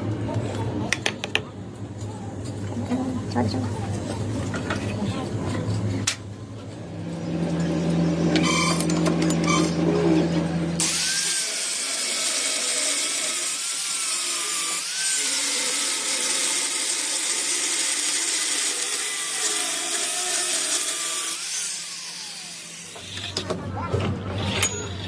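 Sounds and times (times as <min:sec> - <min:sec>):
power tool grinding metal: 0:07.8 - 0:23.4.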